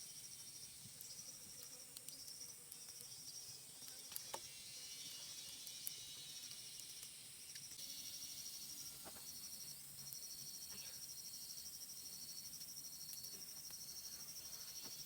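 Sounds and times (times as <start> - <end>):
insects trilling: 0.0 - 15.0
faint clicks: 1.0 - 3.1.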